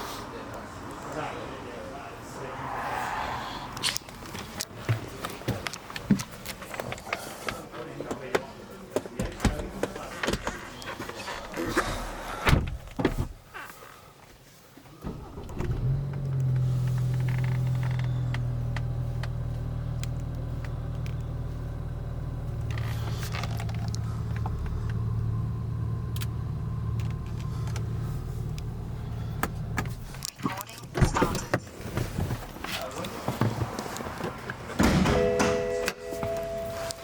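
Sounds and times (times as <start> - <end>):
car engine starting and idling: 15.0 - 33.2, 33.8 - 37.0.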